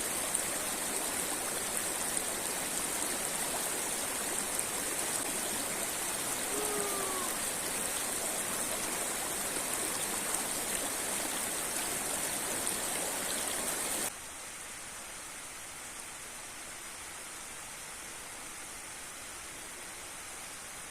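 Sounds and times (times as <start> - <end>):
river and waterfall rushing: 0.0 - 14.1
thin water hiss: 1.7 - 14.1.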